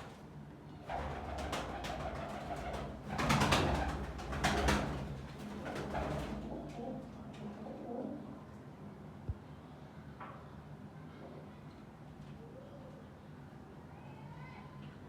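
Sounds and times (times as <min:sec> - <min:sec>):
wings fluttering and scratching: 0:00.9 - 0:06.9.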